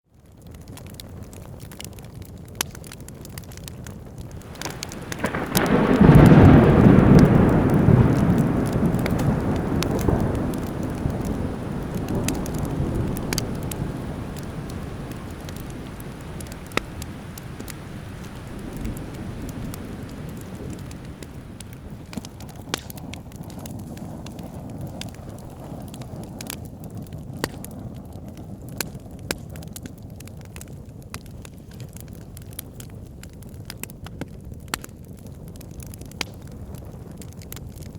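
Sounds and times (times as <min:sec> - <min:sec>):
wood fire crackling: 0:00.2 - 0:37.9
thunder rolling: 0:04.4 - 0:23.8.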